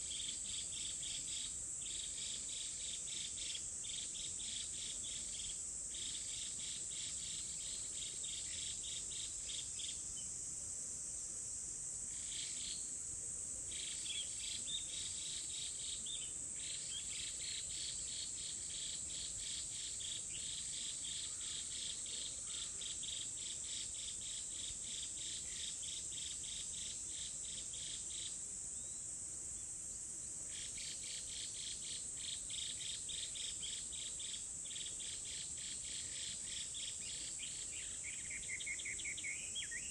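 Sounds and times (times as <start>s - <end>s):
insect high-pitched buzz: 0.0s - 39.9s
insect pulsing chirp: 0.0s - 39.9s.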